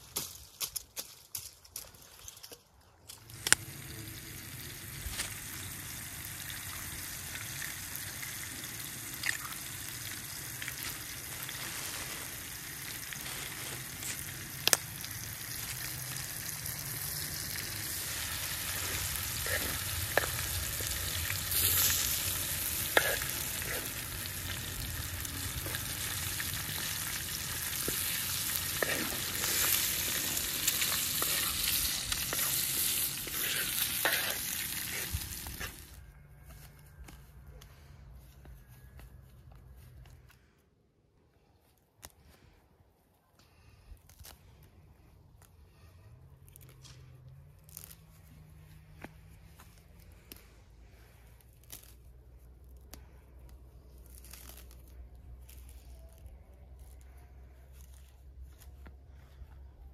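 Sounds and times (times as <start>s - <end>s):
food sizzling in a pan: 3.5s - 35.9s.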